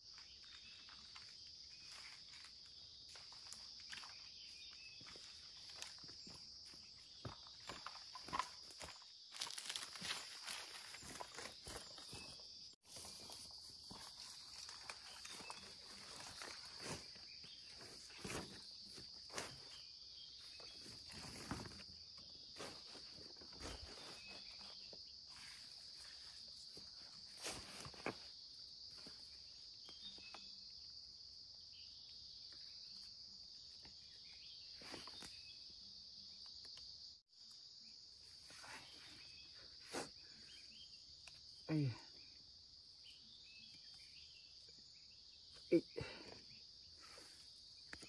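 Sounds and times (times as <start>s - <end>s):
footsteps on leaves and twigs: 0.0s - 30.5s, 33.7s - 35.5s
insects chorus: 0.0s - 48.0s.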